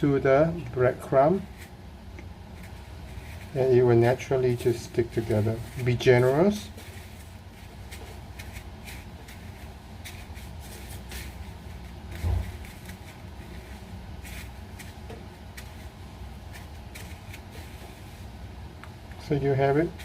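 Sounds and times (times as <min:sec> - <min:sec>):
breadcrumbs rustling and crackling: 0:01.0 - 0:20.0
dull thump: 0:12.1 - 0:12.8.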